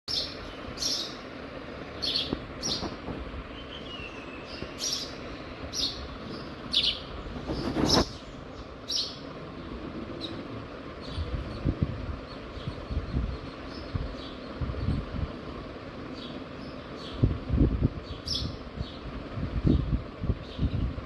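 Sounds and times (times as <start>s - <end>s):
small bird chirping: 0.1s - 1.3s, 1.9s - 15.2s, 16.1s - 17.3s, 17.9s - 20.9s.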